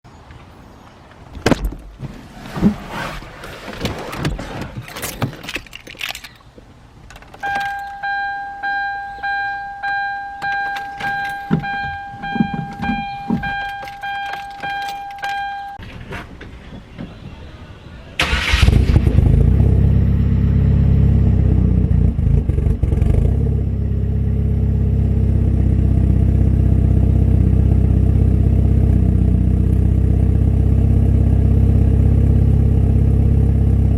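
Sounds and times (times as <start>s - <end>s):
clicks and rattles: 3.8s - 8.0s
car engine starting and idling: 7.0s - 17.4s, 18.2s - 33.9s.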